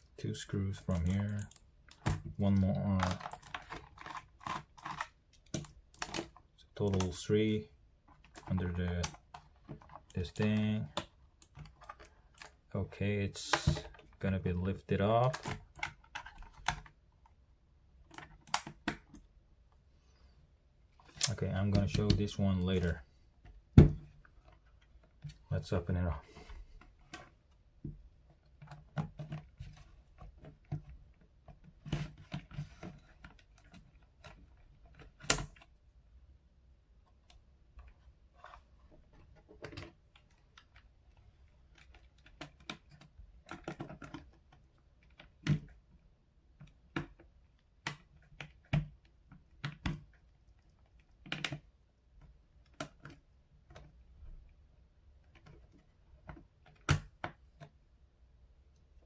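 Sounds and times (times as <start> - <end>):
hands prying at keyboard case: 1.0 - 6.4, 41.7 - 45.8.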